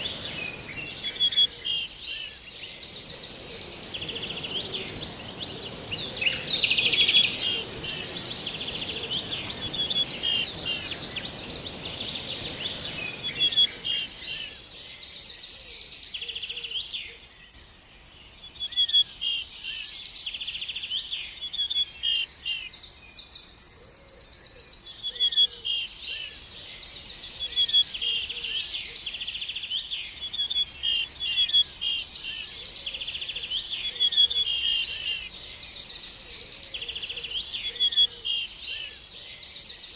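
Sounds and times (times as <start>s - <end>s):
steady hiss: 0.0s - 1.4s, 2.4s - 14.7s
songbird chirping and trilling: 0.0s - 39.9s.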